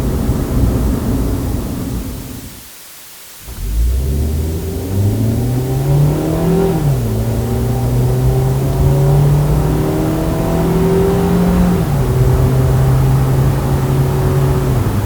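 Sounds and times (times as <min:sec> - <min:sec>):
car engine accelerating: 0:03.4 - 0:15.0.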